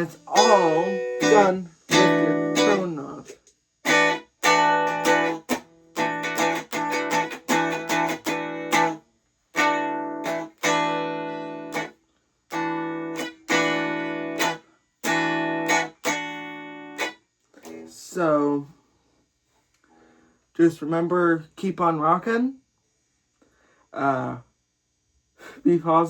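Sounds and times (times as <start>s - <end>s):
electric guitar strumming chords: 0.0s - 11.9s, 12.5s - 18.0s.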